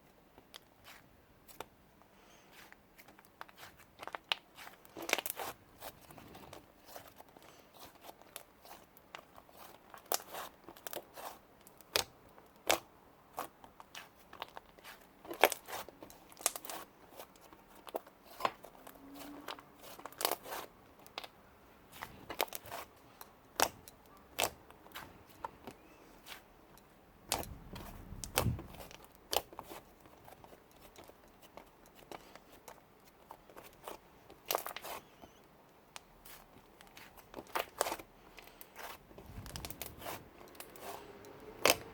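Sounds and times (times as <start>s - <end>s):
low slime squish: 38.7s - 41.9s.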